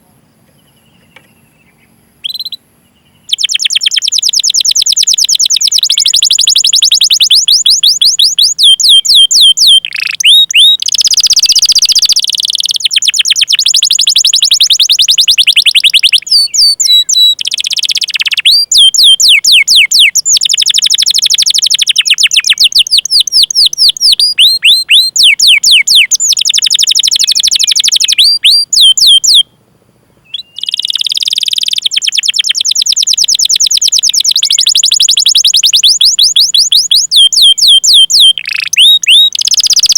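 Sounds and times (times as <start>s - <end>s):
canary singing trills: 0.0s - 29.6s, 30.2s - 39.9s.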